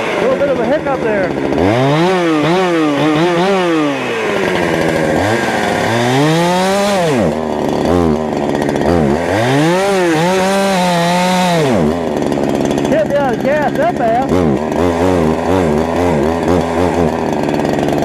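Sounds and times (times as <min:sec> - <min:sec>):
chainsaw engine revving unevenly: 0:00.0 - 0:18.0.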